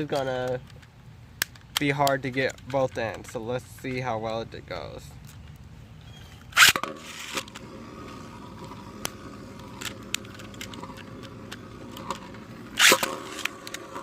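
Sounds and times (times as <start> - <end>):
spinning tops whirring: 6.6 - 14.0
ripcord zip: 12.8 - 13.6.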